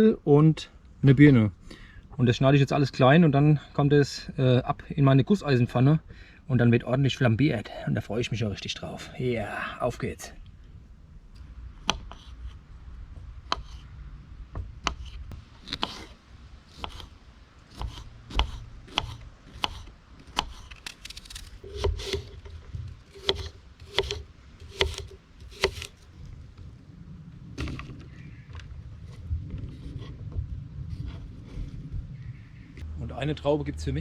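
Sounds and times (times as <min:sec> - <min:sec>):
knife chopping fruit: 0:13.4 - 0:13.8, 0:14.8 - 0:22.5, 0:23.1 - 0:26.0.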